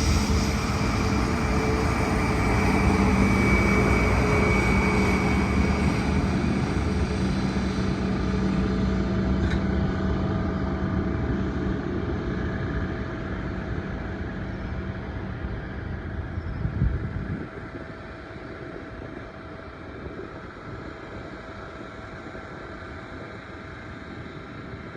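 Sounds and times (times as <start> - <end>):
jet engines rumbling: 0.0 - 24.9
thin steady whine: 0.0 - 24.9.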